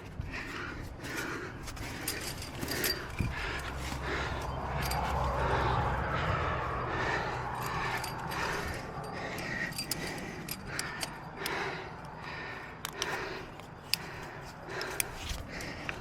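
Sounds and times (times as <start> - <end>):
rustling and scraping: 0.0 - 11.2
metal climbing gear clinking: 0.0 - 16.0.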